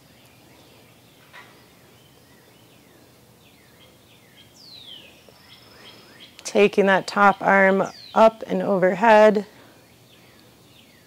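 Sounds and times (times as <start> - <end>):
birds chirping: 0.0 - 11.0
low steady hiss: 0.0 - 11.0.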